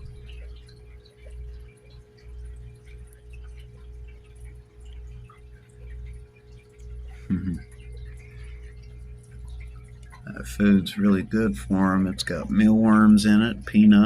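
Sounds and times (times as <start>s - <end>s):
faint ticks: 0.0s - 11.0s
faint constant tone: 0.0s - 14.0s
low hum: 0.0s - 14.0s.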